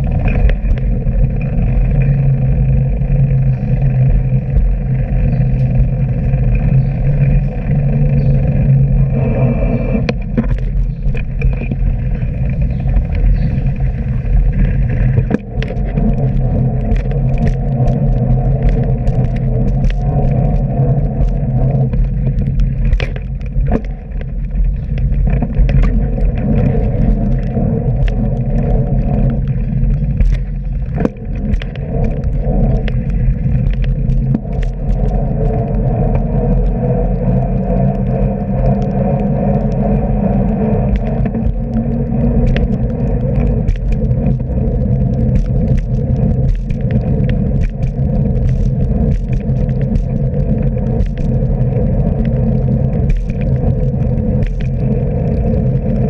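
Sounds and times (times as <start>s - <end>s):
bicycle clicks and rattles: 0.0s - 56.0s
bicycle riding rumble: 0.0s - 56.0s.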